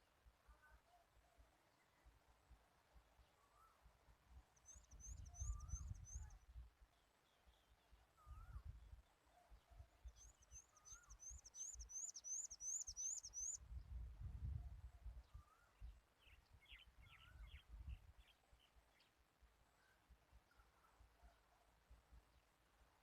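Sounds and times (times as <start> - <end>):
wind rumble on microphone: 4.9 - 6.7, 8.2 - 9.1, 13.5 - 18.3
high repeated bird chirps: 10.4 - 13.6.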